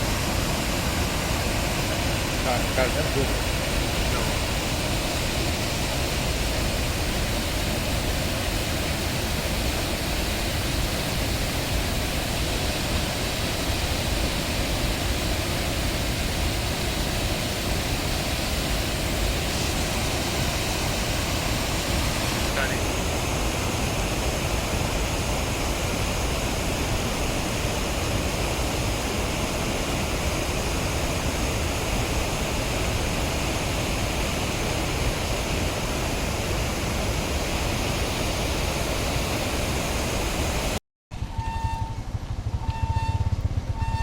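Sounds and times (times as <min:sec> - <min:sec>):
steady rushing noise: 0:00.0 - 0:44.0
low rumble: 0:41.1 - 0:44.0
short beeps: 0:41.3 - 0:42.0, 0:42.6 - 0:44.0.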